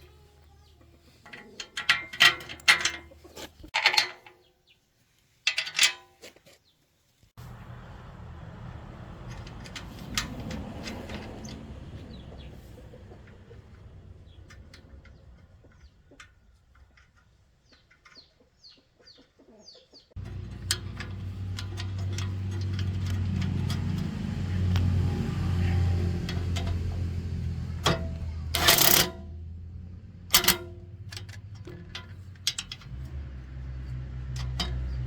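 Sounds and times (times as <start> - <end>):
chickens clucking: 0.1 - 1.8, 2.7 - 3.8, 9.5 - 28.4
low hum: 7.4 - 16.1, 20.2 - 35.0.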